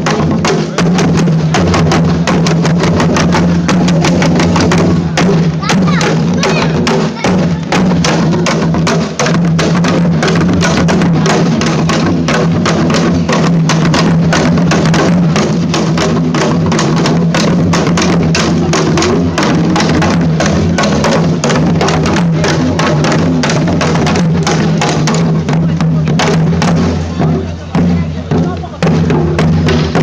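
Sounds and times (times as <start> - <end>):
drums struck in fast rhythm: 0.0 - 30.0.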